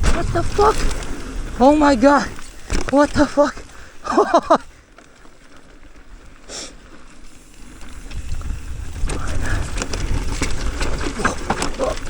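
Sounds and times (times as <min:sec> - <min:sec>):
wind rumble on microphone: 0:00.0 - 0:03.0, 0:07.8 - 0:12.0.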